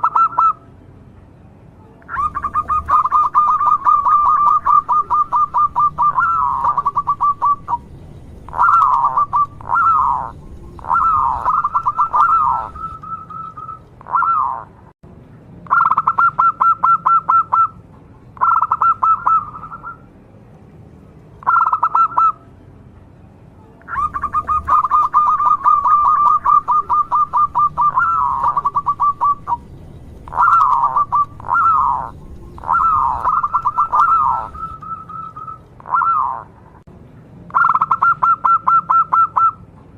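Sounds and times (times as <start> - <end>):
dove cooing: 0.0 - 0.6, 2.1 - 14.7, 18.4 - 20.0, 21.4 - 22.4, 23.9 - 36.5, 37.6 - 39.6.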